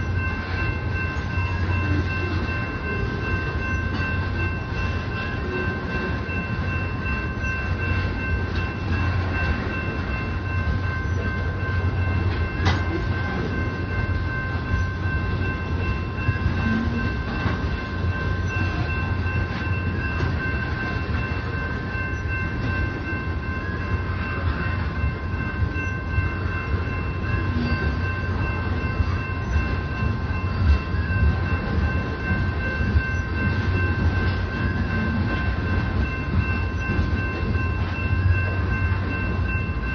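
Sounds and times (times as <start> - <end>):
constant high tones: 0.0 - 39.9
train wheels rumbling on rail: 0.0 - 39.9.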